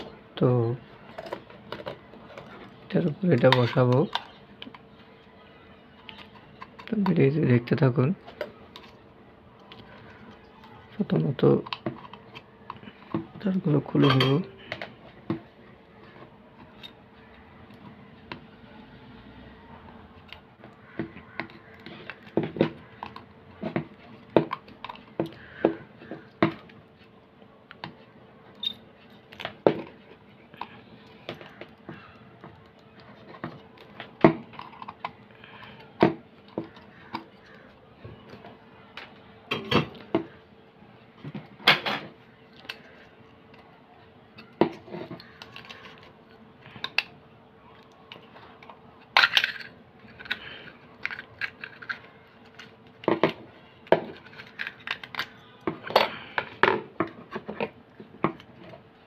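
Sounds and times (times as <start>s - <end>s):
faint steady hum: 0.0s - 59.0s
small parts clicking and clinking: 47.8s - 56.6s.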